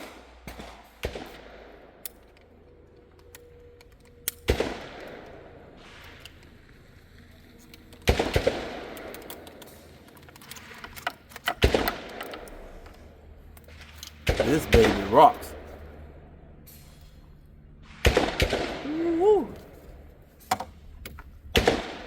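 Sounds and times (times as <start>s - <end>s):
loud gunshots with echo: 14.2s - 15.6s, 17.8s - 19.5s, 21.6s - 22.0s.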